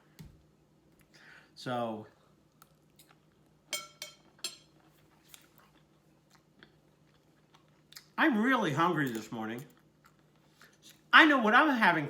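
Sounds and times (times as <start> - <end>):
faint chewing: 2.1 - 8.2, 9.0 - 11.1
fork clinking on plate: 3.7 - 4.7.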